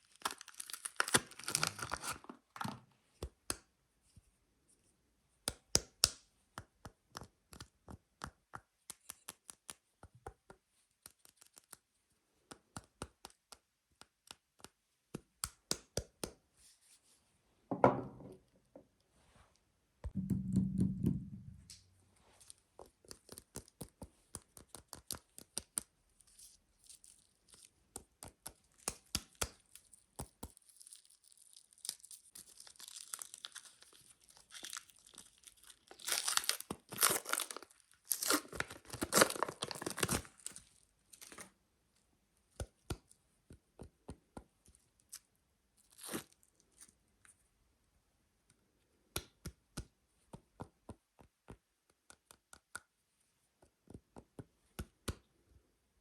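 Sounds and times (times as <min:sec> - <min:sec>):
packaging torn and crinkled: 0:00.0 - 0:02.3, 0:30.6 - 0:41.5.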